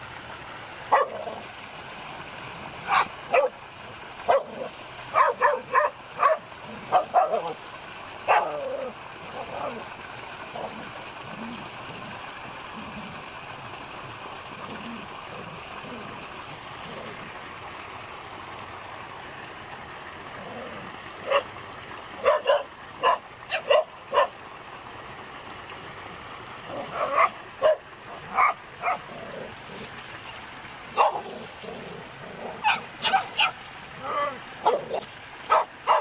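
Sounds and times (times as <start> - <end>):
dogs barking: 0.9 - 1.4, 2.8 - 3.6, 4.2 - 7.6, 8.2 - 9.8, 21.2 - 21.6, 22.2 - 24.4, 26.7 - 29.4, 30.9 - 36.0.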